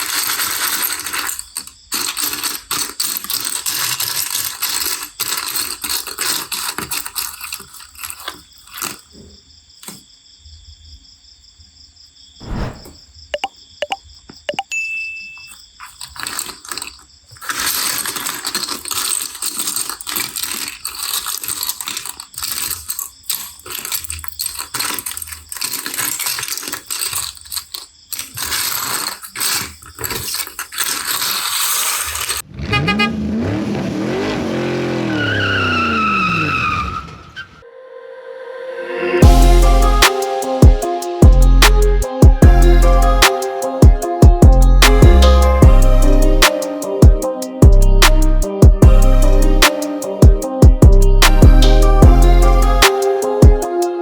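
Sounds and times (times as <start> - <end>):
plastic bricks clattering: 0.0 - 9.1, 15.8 - 32.4.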